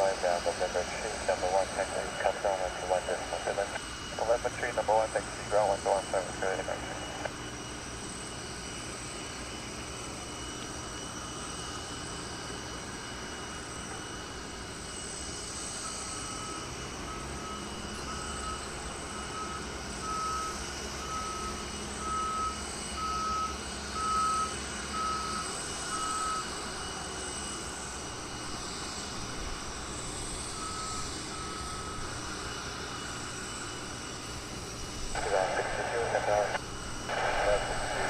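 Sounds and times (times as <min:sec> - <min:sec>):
vehicle reversing alarm beeping: 0:00.0 - 0:07.8, 0:13.4 - 0:28.7, 0:29.9 - 0:34.3
aircraft engines whining and rumbling: 0:00.0 - 0:38.0.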